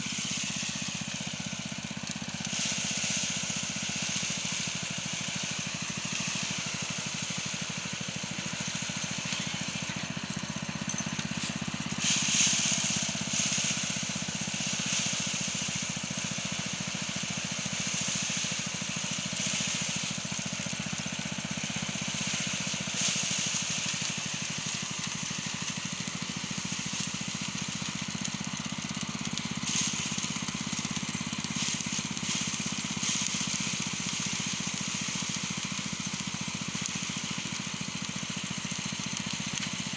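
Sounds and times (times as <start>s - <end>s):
hissing rush: 0.0s - 25.2s
small engine running: 0.0s - 39.9s.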